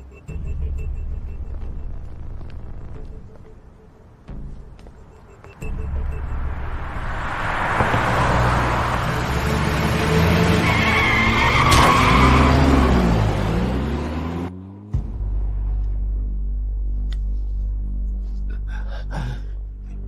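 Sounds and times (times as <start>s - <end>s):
car engine revving hard: 7.9s - 14.8s
tyres squealing: 10.2s - 13.2s.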